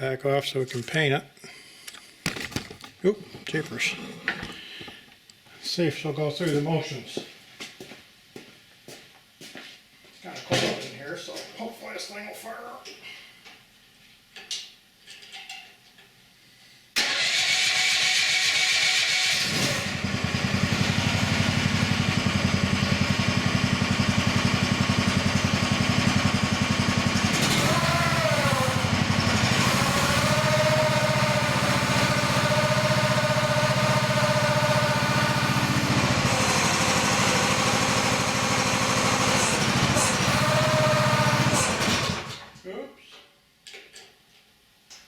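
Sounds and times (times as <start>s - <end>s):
small engine running: 17.8s - 42.4s
hydraulic whine: 19.0s - 42.4s.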